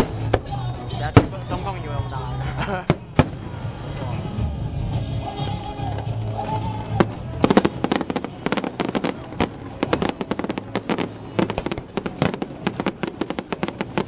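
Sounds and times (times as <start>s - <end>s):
fireworks crackling and popping: 0.0s - 14.0s
music playing: 0.0s - 14.0s.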